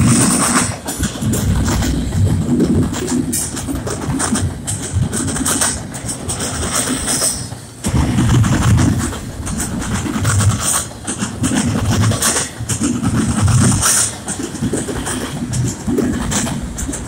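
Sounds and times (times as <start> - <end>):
low thumps of wheel sets: 0.0 - 6.6
train wheels rumbling on rails: 0.0 - 17.0.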